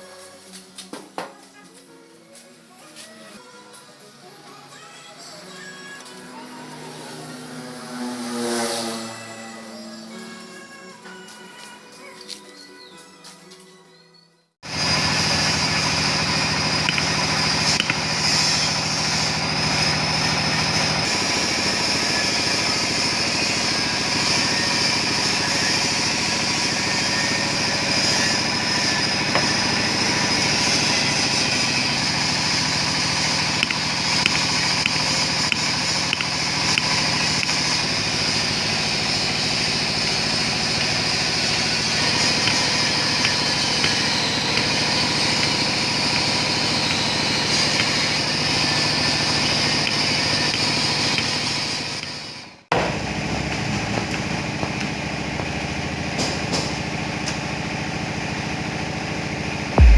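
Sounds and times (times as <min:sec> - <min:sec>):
small machine motor whining: 0:14.7 - 0:52.6.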